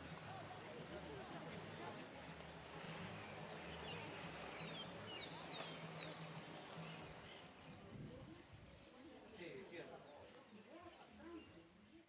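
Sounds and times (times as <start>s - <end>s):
faint outdoor background: 0.0s - 12.0s
birds whistling: 3.2s - 7.7s.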